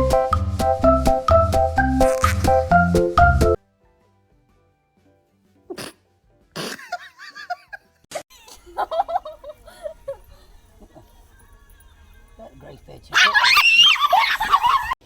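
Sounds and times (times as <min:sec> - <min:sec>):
dog sneezing: 0:05.7 - 0:06.8.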